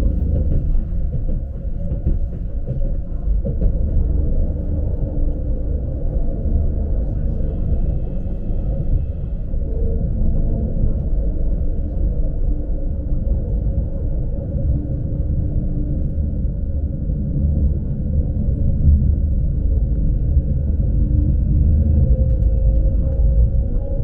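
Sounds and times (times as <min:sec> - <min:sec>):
train rumbling: 0:00.0 - 0:24.0.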